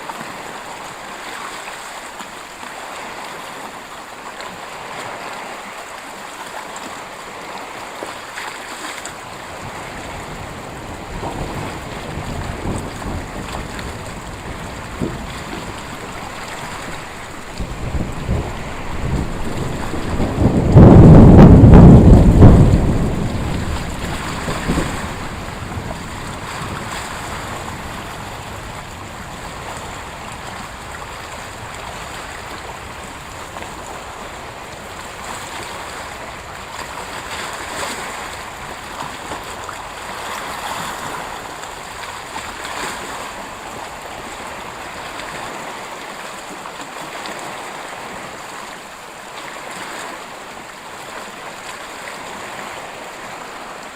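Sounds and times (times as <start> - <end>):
thunderclap rumbling: 9.4 - 40.2.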